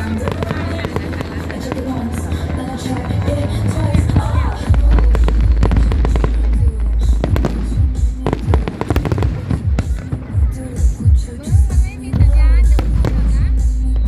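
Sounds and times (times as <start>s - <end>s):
deep low rumble: 0.0s - 11.3s, 12.1s - 14.0s
fireworks crackling and popping: 0.0s - 14.0s
music playing: 0.0s - 14.0s.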